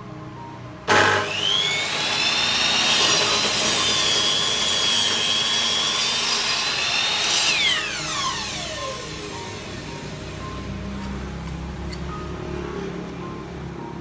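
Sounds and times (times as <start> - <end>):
saw blade cutting wood: 0.9 - 10.4
miter saw whining: 0.9 - 10.7.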